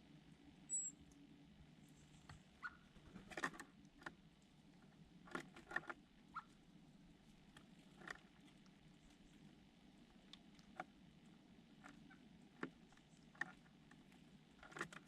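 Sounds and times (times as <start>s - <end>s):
bird chirps: 0.7s - 1.0s
small birds tapping and scratching: 1.9s - 15.0s.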